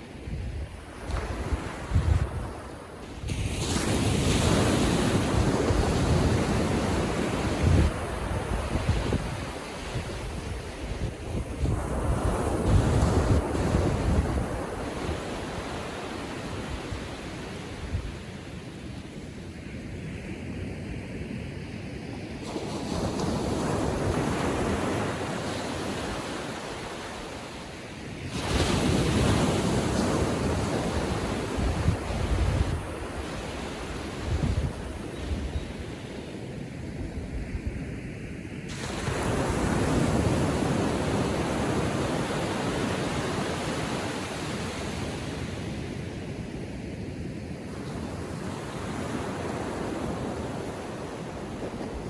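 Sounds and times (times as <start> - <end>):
wind gusting on microphone: 0.0 - 19.0, 28.3 - 38.0
small waves breaking on beach: 0.0 - 52.0.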